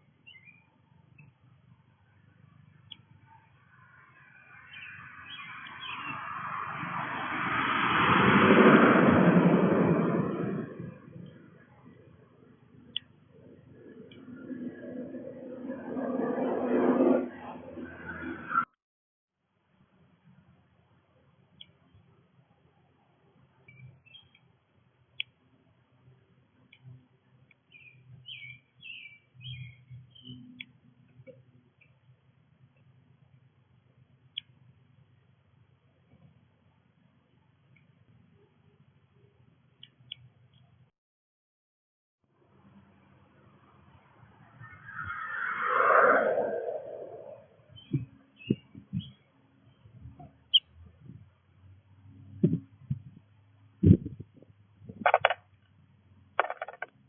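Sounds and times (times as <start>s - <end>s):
small songbirds chirping: 0.0s - 6.3s, 23.6s - 25.4s, 26.7s - 30.7s, 47.7s - 50.8s
vehicle passing by: 4.1s - 11.6s, 13.7s - 18.6s, 44.0s - 47.7s.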